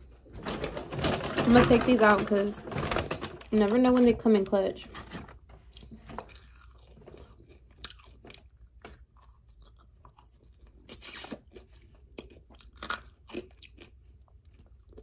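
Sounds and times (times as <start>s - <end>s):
crunching chicken wings: 5.7s - 15.0s
mouth smacks: 10.9s - 11.4s.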